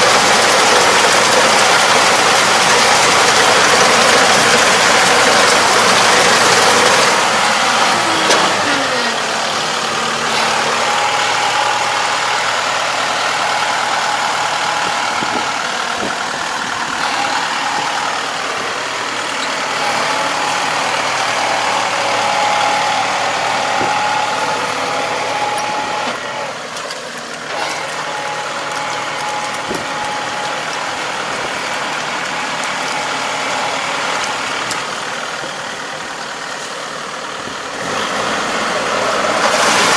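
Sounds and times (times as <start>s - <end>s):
farm machine engine running: 0.0s - 39.9s.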